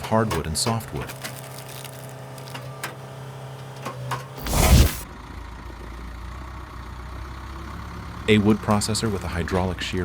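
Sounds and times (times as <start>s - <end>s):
machine mechanical hum: 0.0s - 5.0s
wood splitting crash: 1.0s - 2.6s.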